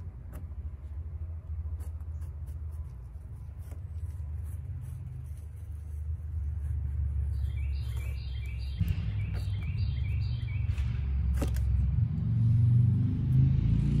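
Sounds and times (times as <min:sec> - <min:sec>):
low steady rumble: 0:00.0 - 0:14.0
bird singing falling chirps: 0:07.2 - 0:11.8.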